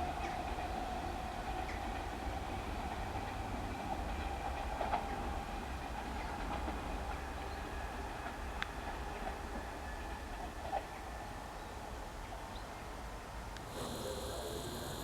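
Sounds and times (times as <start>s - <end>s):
train running at low speed: 0.0s - 15.0s
wheels clicking on rails: 13.6s - 15.0s.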